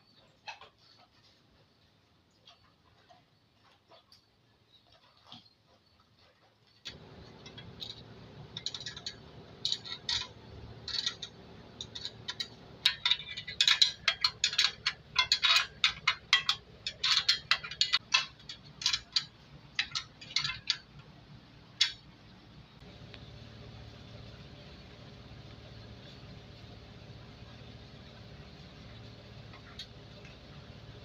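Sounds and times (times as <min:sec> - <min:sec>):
metallic hand tool clicking and scraping: 0:06.9 - 0:21.0
steady low hum: 0:06.9 - 0:31.0.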